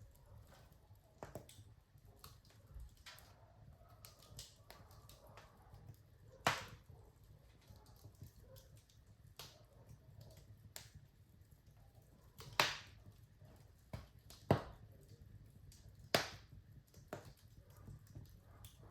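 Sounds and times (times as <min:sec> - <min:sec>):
wood fire crackling: 0:00.0 - 0:18.9
loud sharp pops of fire: 0:06.3 - 0:06.9, 0:12.4 - 0:13.1, 0:13.8 - 0:15.1, 0:15.7 - 0:18.9.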